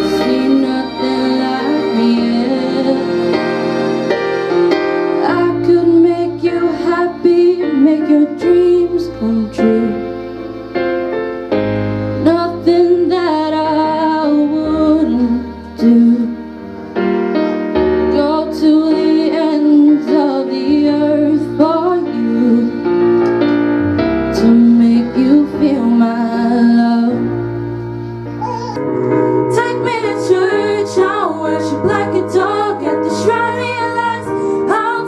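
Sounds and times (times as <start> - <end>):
woman singing a slow ballad: 0.0 - 3.2, 5.2 - 10.0, 12.2 - 16.4, 18.1 - 22.8, 24.4 - 27.3, 29.5 - 35.0
piano accompaniment: 0.0 - 35.0.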